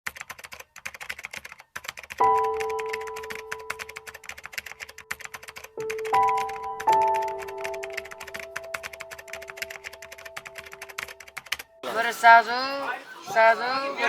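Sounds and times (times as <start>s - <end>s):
keyboard typing clicks: 0.1s - 11.8s
music: 2.2s - 11.8s.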